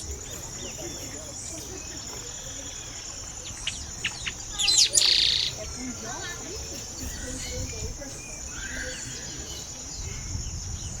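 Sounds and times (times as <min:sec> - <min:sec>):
bird chirps: 0:02.5 - 0:05.8.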